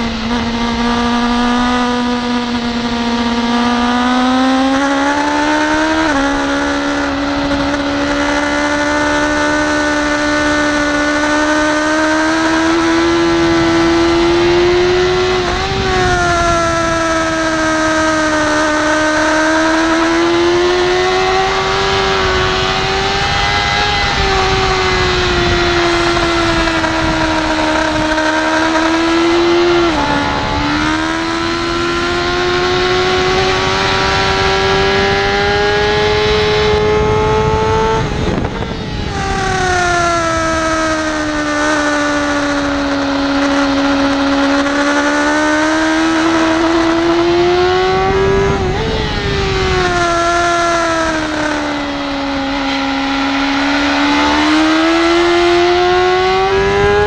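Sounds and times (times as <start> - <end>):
motorcycle engine at high revs: 0.0 - 57.0
wind noise: 0.0 - 57.0.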